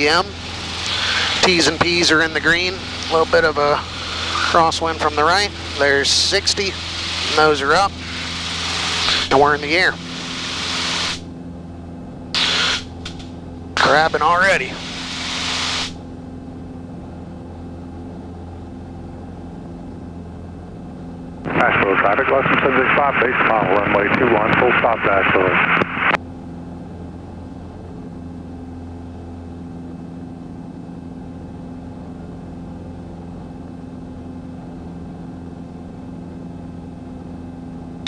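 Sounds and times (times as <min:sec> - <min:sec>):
airplane engine drone in cabin: 0:00.0 - 0:38.0.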